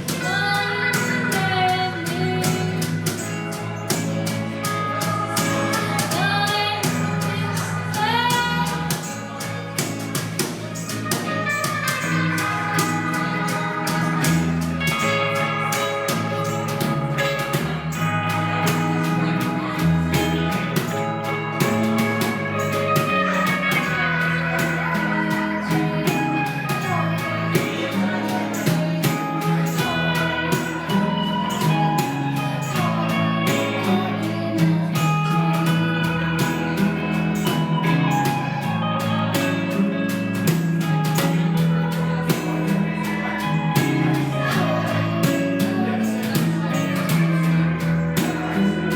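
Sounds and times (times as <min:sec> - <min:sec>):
bass line: 0:00.0 - 0:48.9
guitar: 0:00.0 - 0:48.9.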